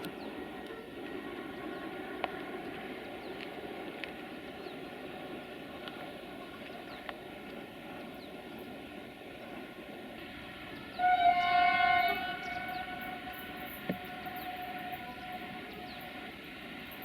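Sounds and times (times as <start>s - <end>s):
train running noise: 0.0s - 17.0s
train horn blast: 10.9s - 16.5s.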